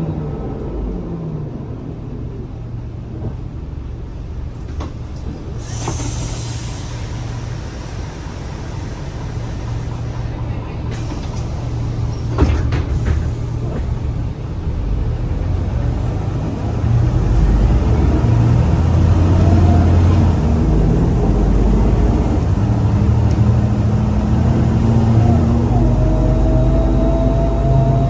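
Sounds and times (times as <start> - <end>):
bus engine accelerating: 0.0 - 28.0
drivetrain whine: 4.0 - 16.0.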